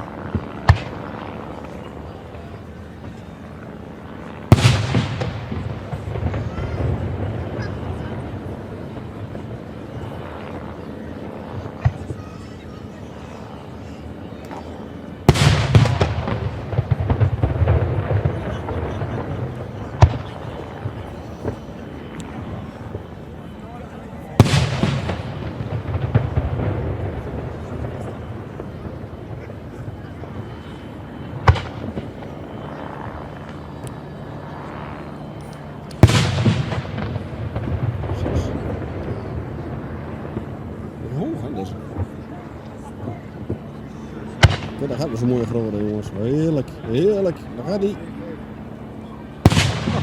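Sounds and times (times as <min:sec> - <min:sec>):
fireworks crackling: 0:00.0 - 0:01.6, 0:04.4 - 0:10.2, 0:15.3 - 0:30.5, 0:31.2 - 0:32.7, 0:35.4 - 0:41.2, 0:44.4 - 0:47.9, 0:49.4 - 0:50.0
firework bang: 0:04.5 - 0:07.8, 0:15.3 - 0:21.6, 0:24.4 - 0:29.5, 0:31.4 - 0:32.0, 0:36.0 - 0:39.5, 0:44.4 - 0:44.8, 0:49.4 - 0:50.0.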